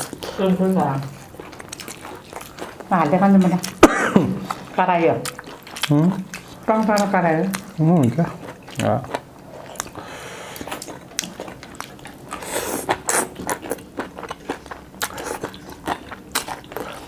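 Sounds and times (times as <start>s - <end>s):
close biting and chewing: 0.0s - 3.8s, 4.4s - 17.0s.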